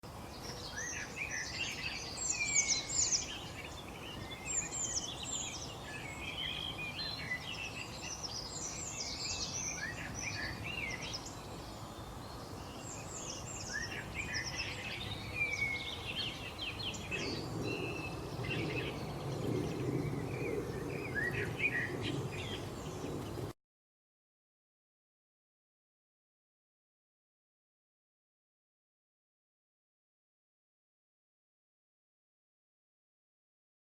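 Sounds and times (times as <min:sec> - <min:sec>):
steady background hiss: 0:00.1 - 0:23.5
small birds chirping: 0:00.1 - 0:23.6
low rumbling noise: 0:14.9 - 0:23.6.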